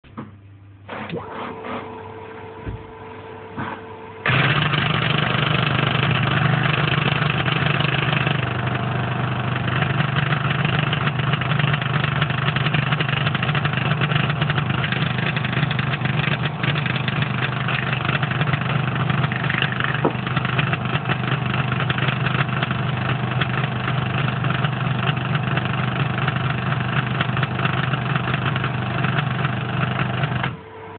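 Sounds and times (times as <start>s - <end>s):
compressor humming: 0.0s - 30.9s
compressor knocking: 2.6s - 3.0s, 3.6s - 30.6s.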